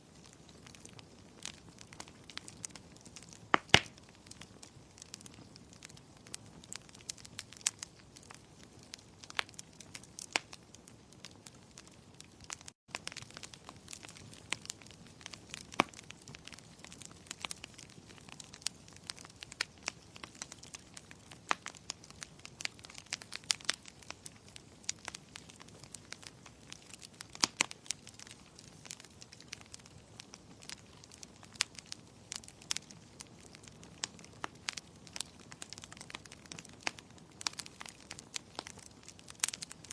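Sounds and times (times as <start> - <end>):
soft steady hiss: 0.0 - 11.5
wood fire crackling: 0.0 - 39.9.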